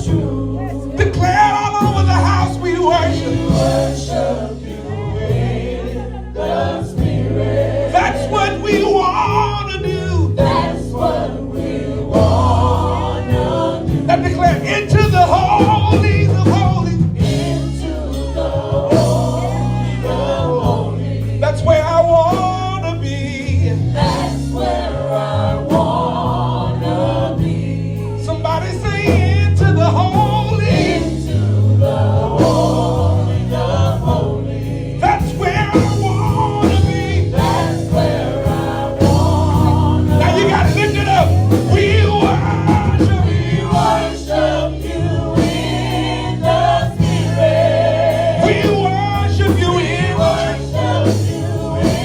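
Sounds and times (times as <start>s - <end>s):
instrumental accompaniment: 0.0s - 52.0s
voices singing gospel music: 0.0s - 52.0s.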